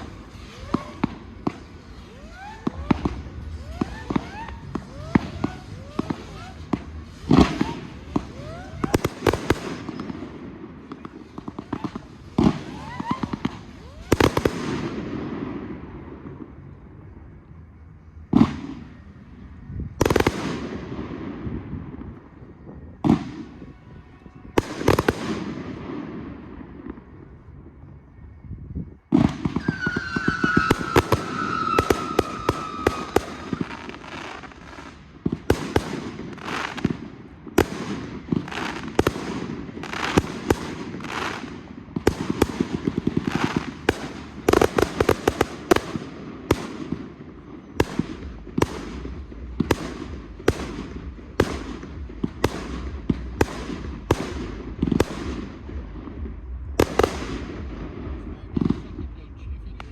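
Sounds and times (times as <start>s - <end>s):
fireworks bangs: 0.0s - 27.9s, 29.0s - 59.9s
firework whistle falling in pitch: 29.5s - 34.0s.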